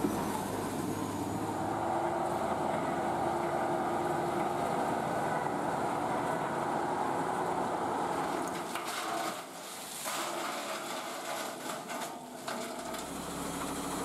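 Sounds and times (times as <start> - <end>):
vehicle engine droning: 0.0 - 8.7, 12.7 - 14.0.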